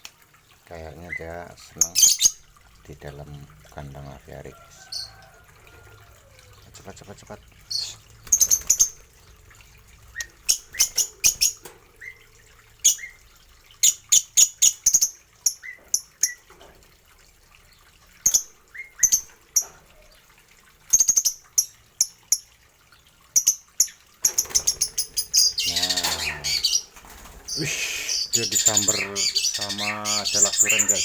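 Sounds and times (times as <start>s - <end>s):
small birds chirping: 0.7s - 5.2s, 6.2s - 9.4s, 10.0s - 16.5s, 23.3s - 31.0s.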